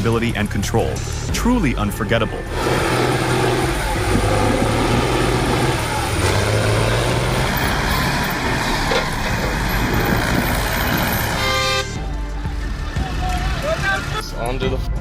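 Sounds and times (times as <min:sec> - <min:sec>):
heavy vehicle engine under load: 0:02.3 - 0:12.0
dense mechanical noise: 0:02.4 - 0:12.0.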